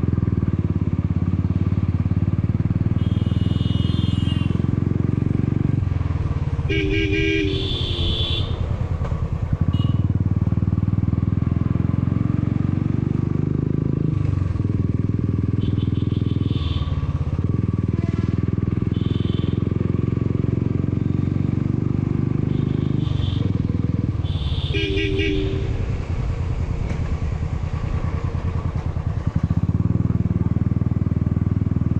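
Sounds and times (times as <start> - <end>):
motorcycle engine running: 0.0 - 31.9
horn beeping: 6.7 - 8.6, 24.2 - 26.0.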